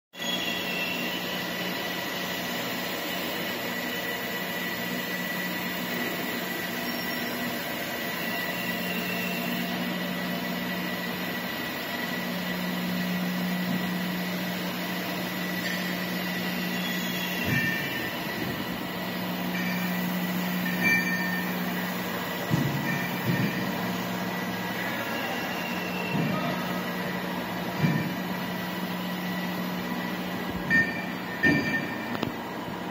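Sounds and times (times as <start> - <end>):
machinery hum: 0.2 - 32.9
high whine: 13.4 - 32.9.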